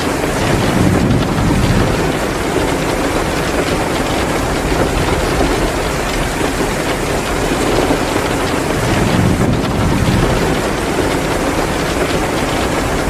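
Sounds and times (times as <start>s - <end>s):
heavy downpour hissing: 0.0s - 13.0s
wood fire crackling: 0.0s - 13.0s
low rumble: 0.4s - 3.2s, 8.7s - 11.4s.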